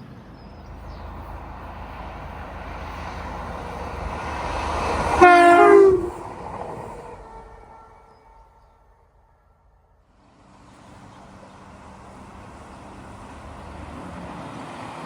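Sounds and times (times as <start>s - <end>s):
train rumbling: 0.0s - 15.0s
train horn blast: 4.8s - 6.5s.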